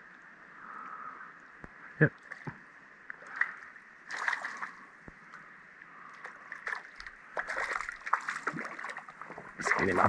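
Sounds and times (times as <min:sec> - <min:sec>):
creek water running: 0:02.0 - 0:10.0
fish splashing in water: 0:03.3 - 0:04.8, 0:06.2 - 0:10.0.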